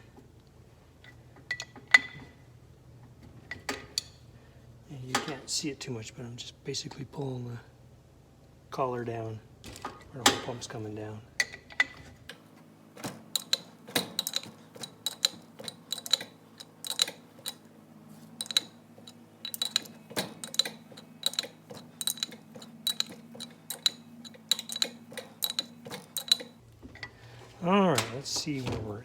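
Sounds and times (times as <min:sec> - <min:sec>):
wrench clicking: 0:13.4 - 0:17.6, 0:18.4 - 0:26.6.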